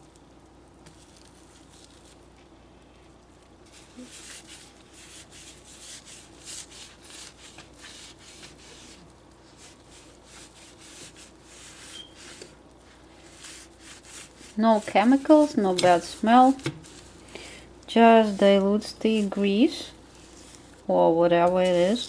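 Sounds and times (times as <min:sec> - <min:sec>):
hand rubbing stovetop: 0:03.7 - 0:17.6.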